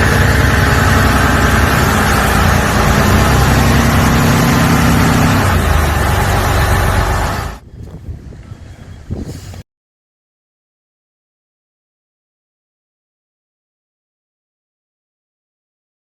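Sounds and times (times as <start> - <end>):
boat diesel engine running: 0.0 - 8.9.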